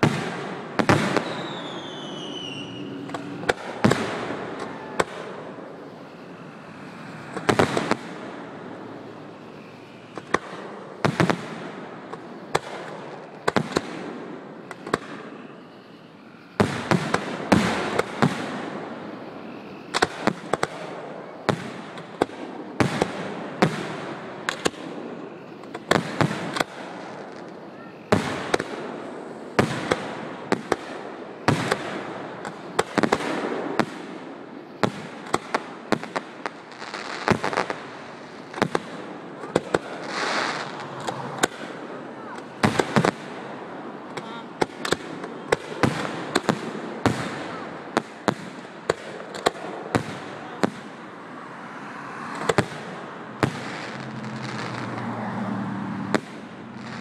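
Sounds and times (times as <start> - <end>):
background noise: 0.0 - 57.0
fireworks bursting: 0.0 - 57.0.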